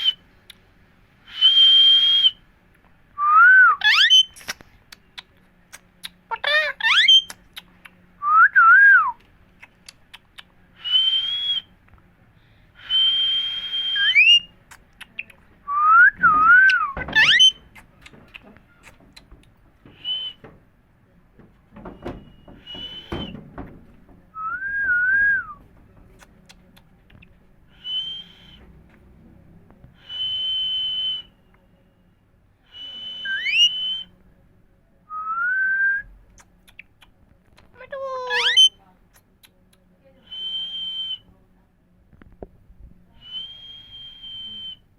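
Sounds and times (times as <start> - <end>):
parrot whistling: 3.3 - 4.4, 6.8 - 7.3, 15.9 - 17.6, 22.2 - 23.3, 27.7 - 28.6, 32.7 - 34.1, 38.3 - 38.8.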